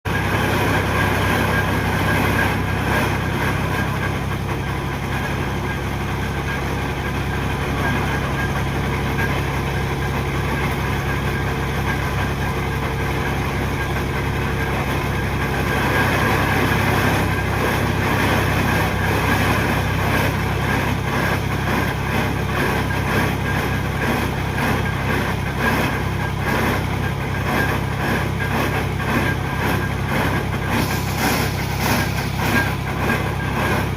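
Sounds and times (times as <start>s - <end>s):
piling machine engine running: 0.1s - 33.9s.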